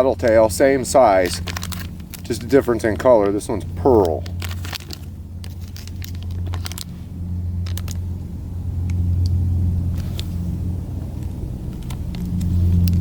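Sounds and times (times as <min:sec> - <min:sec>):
low rumble: 0:00.0 - 0:13.0
plastic package crinkling: 0:00.2 - 0:06.9, 0:07.6 - 0:08.0.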